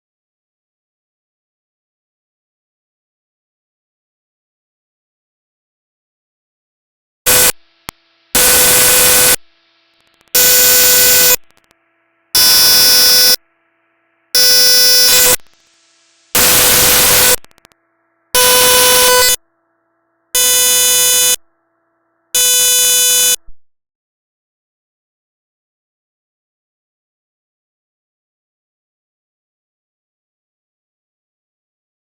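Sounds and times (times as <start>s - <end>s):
buzzy radio beeps: 7.3s - 7.6s, 8.4s - 9.4s, 10.3s - 11.6s, 12.4s - 13.4s, 14.4s - 15.5s, 16.3s - 17.7s, 18.4s - 19.4s, 20.4s - 21.4s, 22.4s - 23.5s
radio static: 7.3s - 7.6s, 8.4s - 9.4s, 10.0s - 11.7s, 12.4s - 13.4s, 14.4s - 15.6s, 16.3s - 17.7s, 18.4s - 19.4s.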